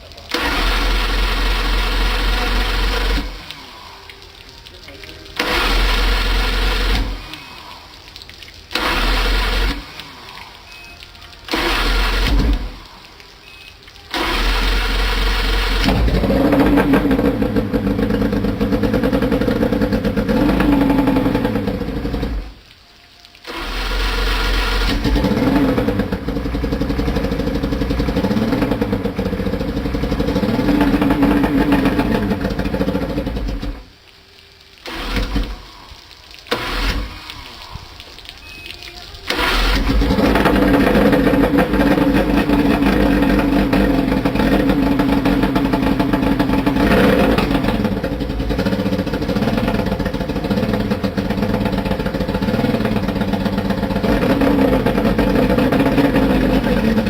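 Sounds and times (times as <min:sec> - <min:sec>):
outboard motor running: 0:05.4 - 0:07.3, 0:11.5 - 0:12.8, 0:14.1 - 0:22.5, 0:39.3 - 0:57.0.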